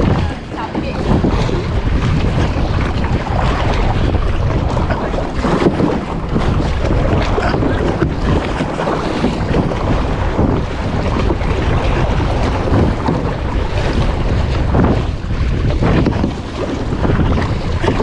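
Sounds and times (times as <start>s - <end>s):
waves and swell: 0.0s - 18.0s
wind buffeting microphone: 0.0s - 18.0s.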